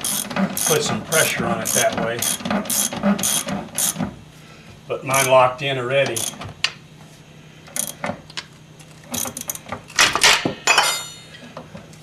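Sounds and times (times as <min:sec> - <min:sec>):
socket ratchet clicking: 0:06.1 - 0:06.4
metal tools clanking: 0:09.2 - 0:11.5
sharp metallic clink: 0:10.7 - 0:11.4.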